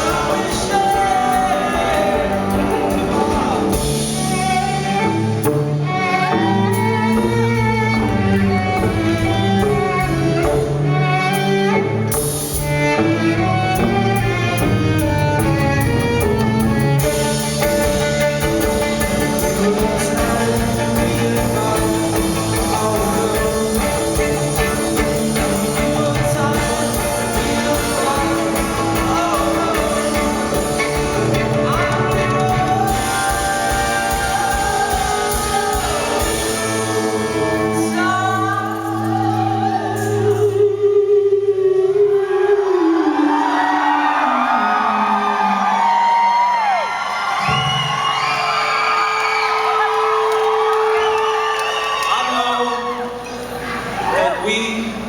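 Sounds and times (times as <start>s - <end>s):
live band playing: 0.0s - 40.9s
violin: 0.0s - 41.0s.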